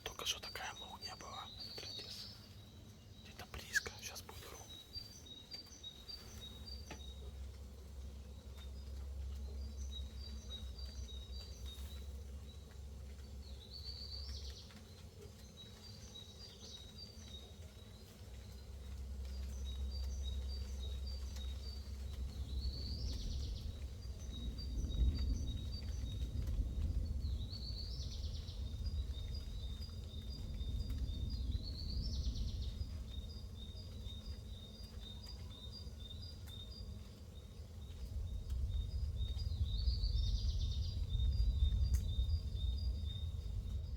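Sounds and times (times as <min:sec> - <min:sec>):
rolling thunder: 0:22.4 - 0:33.3, 0:38.1 - 0:43.9.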